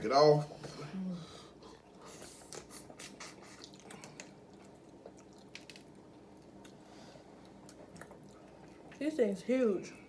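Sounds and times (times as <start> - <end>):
soft eating sounds: 0.4 - 10.0
wet squishing: 2.5 - 6.8
crawfish shells cracking: 5.3 - 6.1.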